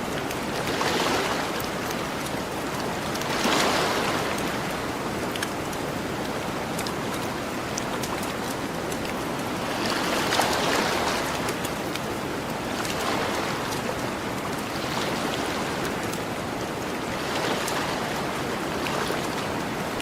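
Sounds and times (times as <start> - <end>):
ocean waves washing ashore: 0.0 - 20.0.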